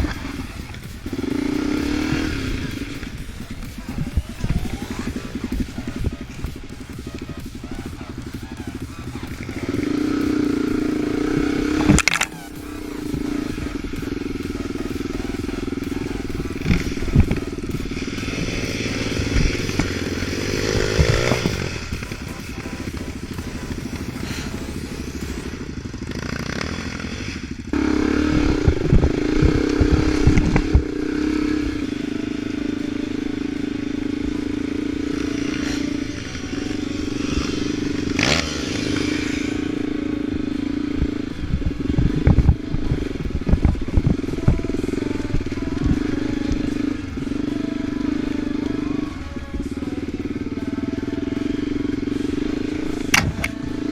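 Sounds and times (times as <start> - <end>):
off-road vehicle engine running: 0.0 - 53.9.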